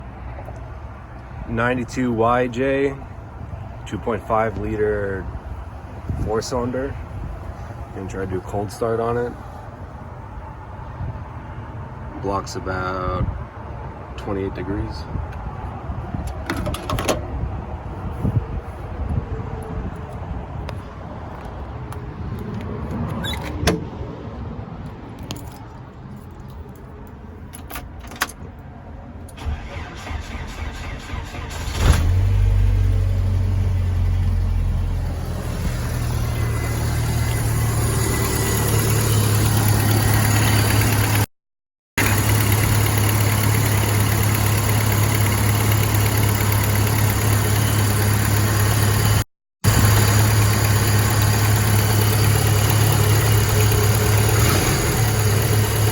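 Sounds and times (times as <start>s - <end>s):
car engine starting and idling: 29.2s - 41.3s, 42.0s - 55.9s.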